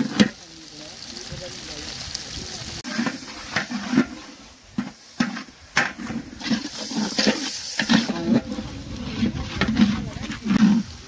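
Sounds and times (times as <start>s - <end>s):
water hissing into hot pot: 0.0s - 11.0s
ladle scraping metal pot: 2.8s - 11.0s.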